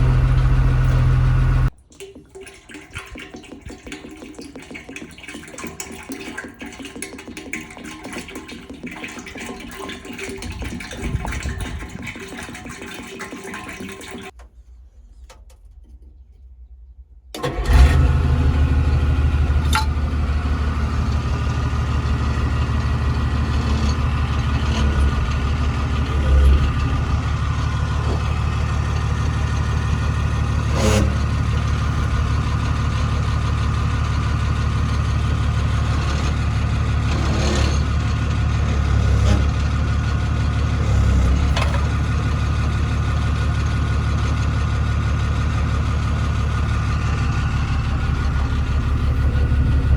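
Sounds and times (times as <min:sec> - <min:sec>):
diesel engine starting and idling: 0:00.0 - 0:01.8, 0:17.4 - 0:49.9.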